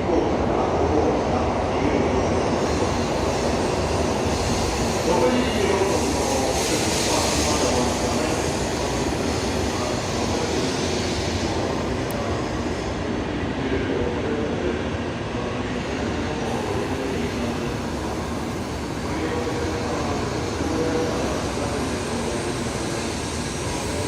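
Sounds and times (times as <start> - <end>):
train car low rumble: 0.0 - 24.0
hiss: 2.6 - 12.0, 16.4 - 24.0.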